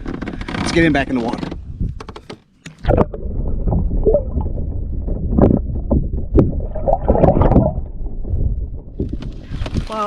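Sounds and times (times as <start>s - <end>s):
wind rumble on microphone: 1.5s - 2.1s, 2.8s - 10.0s
water sloshing and splashing: 2.7s - 10.0s.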